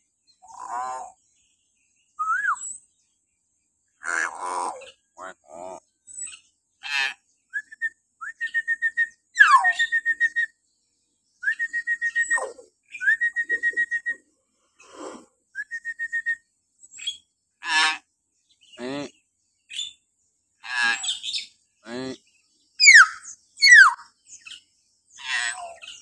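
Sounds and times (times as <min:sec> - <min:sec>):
myna bird whistling: 0:02.2 - 0:02.8, 0:07.5 - 0:10.6, 0:11.4 - 0:14.2, 0:14.9 - 0:16.4, 0:22.8 - 0:24.1.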